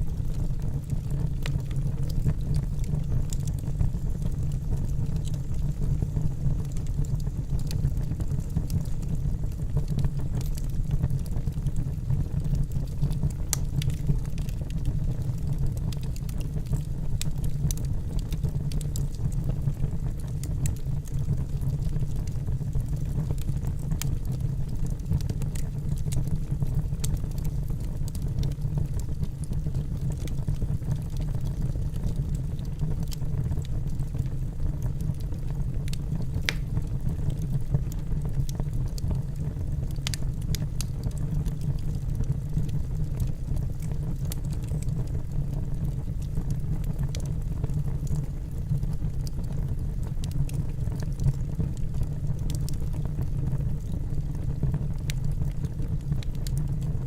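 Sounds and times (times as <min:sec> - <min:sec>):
logs crackling and popping: 0:00.0 - 0:57.0
low rumble of flames: 0:00.0 - 0:57.0.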